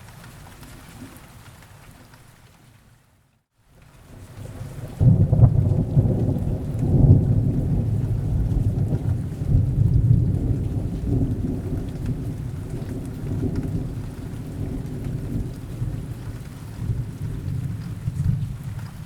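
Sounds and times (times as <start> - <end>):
steady rain: 0.0 - 19.0
rolling thunder rumble: 4.2 - 19.0.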